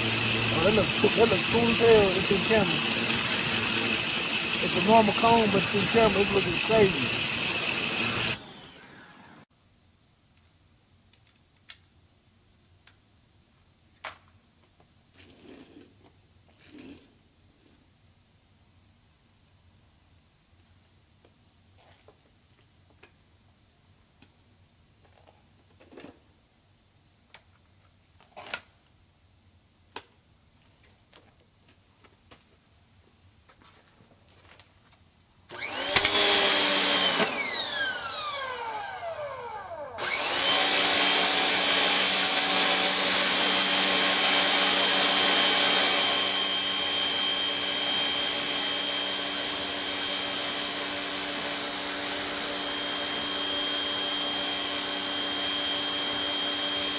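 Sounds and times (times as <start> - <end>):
pressure washer motor whining: 0.0 - 9.4, 35.6 - 56.9.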